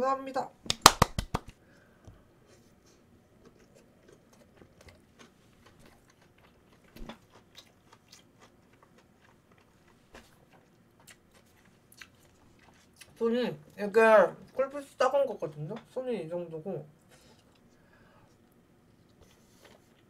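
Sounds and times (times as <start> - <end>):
hand claps: 0.7 - 1.6
close-up chewing: 2.9 - 13.2, 17.2 - 20.0.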